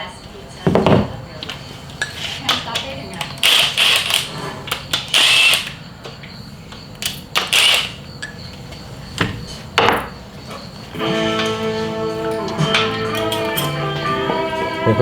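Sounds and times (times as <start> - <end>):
power tool bursts: 3.4 - 4.4, 5.0 - 5.8, 7.4 - 8.0.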